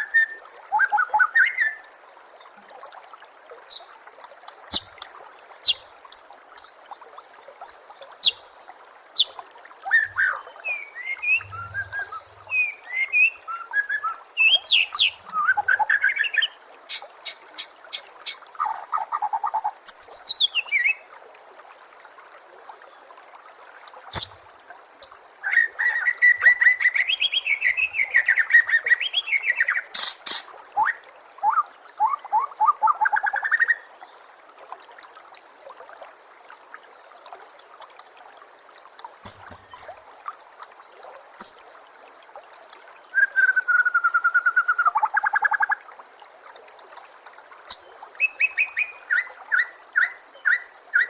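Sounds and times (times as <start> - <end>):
trickling water: 0.0 - 51.0
bird singing: 9.2 - 16.5.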